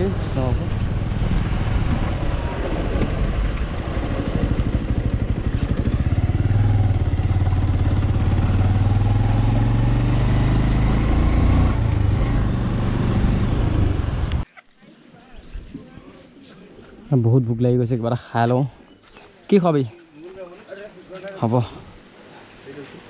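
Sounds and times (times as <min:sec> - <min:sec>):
motorcycle engine running: 0:00.0 - 0:14.4.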